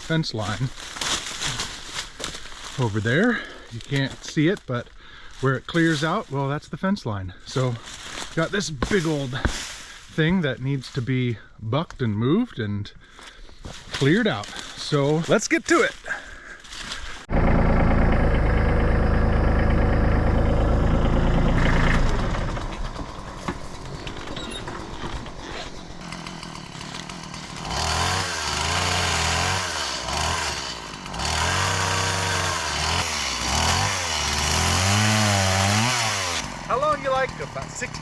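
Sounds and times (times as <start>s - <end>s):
chainsaw engine revving: 17.3s - 38.0s.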